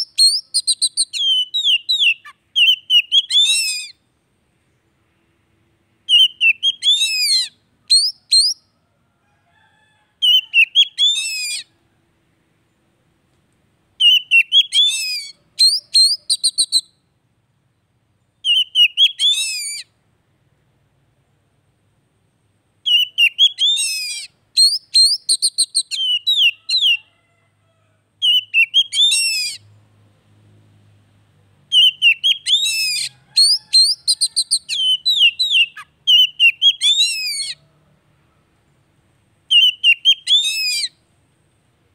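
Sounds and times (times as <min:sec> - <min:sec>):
bird song whistles and trills: 0:00.0 - 0:04.0, 0:06.0 - 0:08.8, 0:10.2 - 0:11.7, 0:14.0 - 0:17.1, 0:18.2 - 0:20.0, 0:22.8 - 0:27.0, 0:28.2 - 0:29.8, 0:31.7 - 0:37.6, 0:39.5 - 0:41.0.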